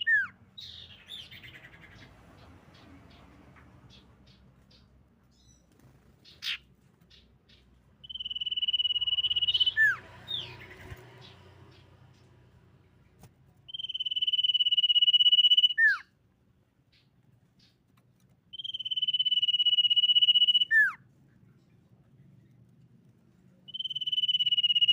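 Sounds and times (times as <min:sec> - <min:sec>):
bird song with high trill: 0:00.0 - 0:12.4, 0:13.7 - 0:16.1, 0:18.5 - 0:21.0, 0:23.7 - 0:24.9.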